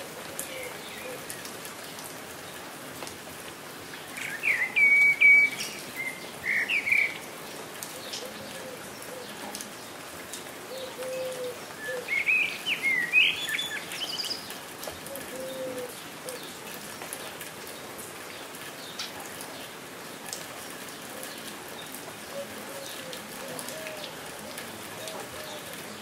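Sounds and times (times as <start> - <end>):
steady rain: 0.0 - 26.0
birds chirping: 4.1 - 9.3, 10.7 - 14.6.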